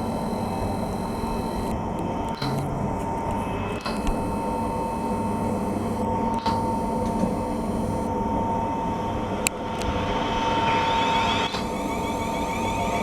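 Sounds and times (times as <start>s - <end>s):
train equipment humming: 0.0s - 13.0s
train motor whine: 0.0s - 13.0s.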